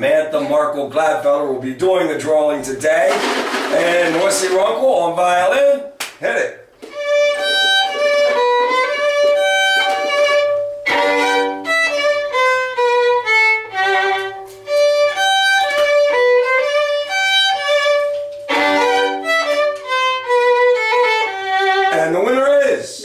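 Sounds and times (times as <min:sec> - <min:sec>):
solo violin melody: 0:06.8 - 0:22.0.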